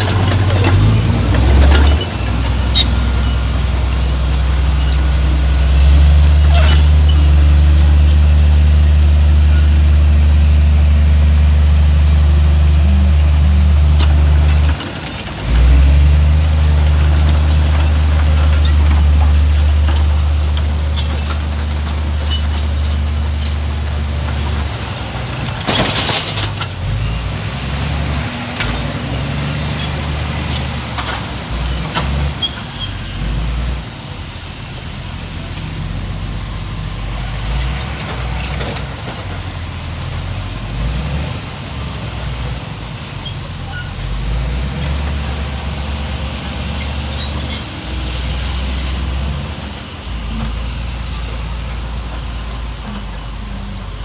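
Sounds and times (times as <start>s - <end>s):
metal clanks: 0.0s - 8.2s, 17.7s - 27.1s
diesel engine rumble: 0.0s - 54.0s.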